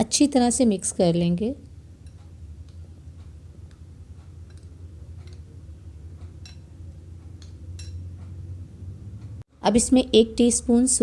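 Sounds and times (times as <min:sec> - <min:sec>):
steady low hum: 0:00.0 - 0:09.4
spoon clicking against bowl: 0:02.0 - 0:08.2.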